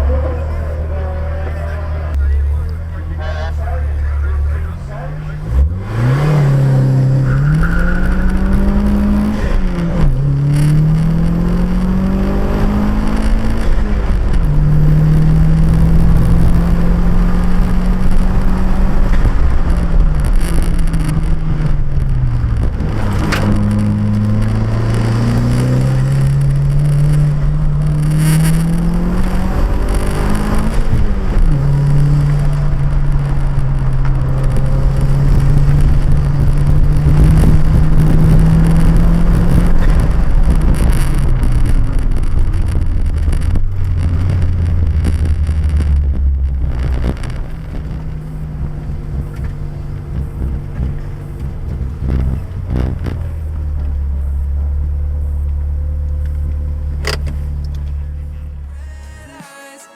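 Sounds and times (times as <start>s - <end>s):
car engine revving: 0.0s - 59.4s
sharp click: 55.4s - 58.0s.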